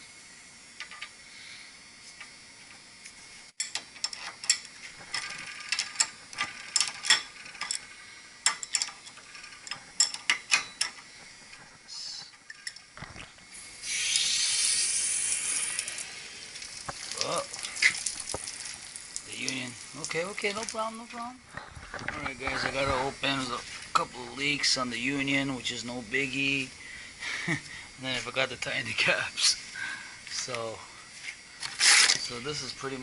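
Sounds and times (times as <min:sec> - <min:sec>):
metallic clicks of tools: 0:08.4 - 0:11.0
pressure hissing from pipe: 0:13.2 - 0:20.8.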